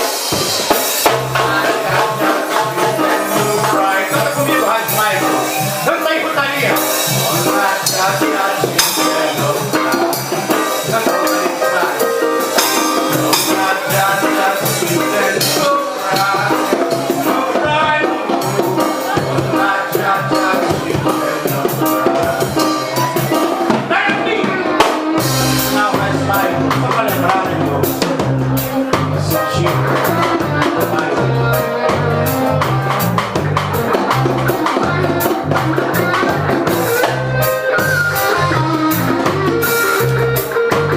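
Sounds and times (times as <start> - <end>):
deep bass line: 0.0 - 40.9
reggae band playing: 0.0 - 40.9.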